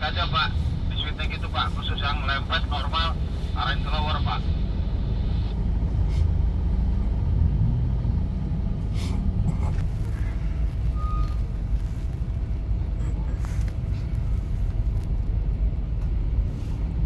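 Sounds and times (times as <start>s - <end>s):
vehicle engines rumbling: 0.0s - 17.0s
faint beep: 10.9s - 11.4s.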